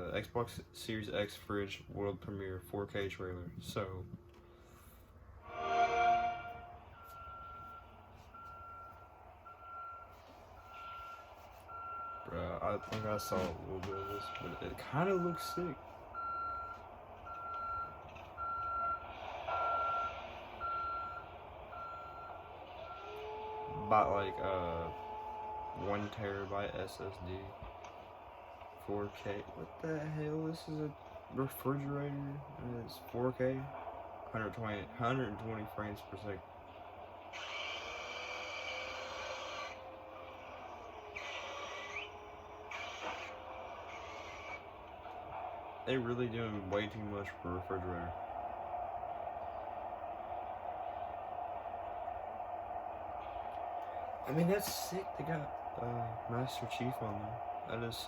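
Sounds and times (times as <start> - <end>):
low hum: 0.0 - 58.0
electronic reversing beeps: 6.1 - 27.4.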